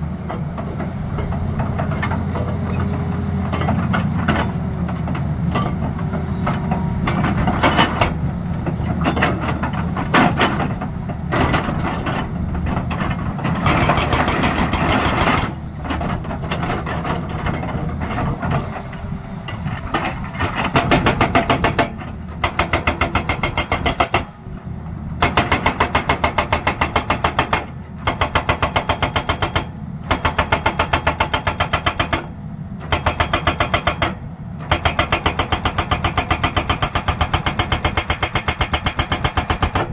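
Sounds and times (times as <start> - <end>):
diesel engine running: 0.0 - 26.3
hydraulic breaker hammering: 20.0 - 24.4, 25.2 - 39.9.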